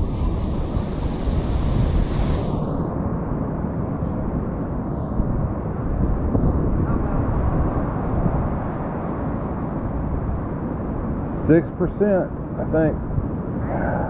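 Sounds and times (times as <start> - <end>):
low rumbling noise: 0.0 - 11.6, 12.4 - 14.0.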